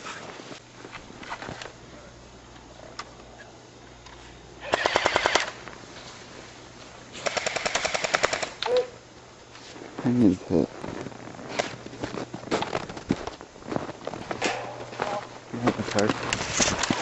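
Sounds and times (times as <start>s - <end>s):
airsoft rifle bursts: 4.6s - 5.6s, 7.2s - 8.8s.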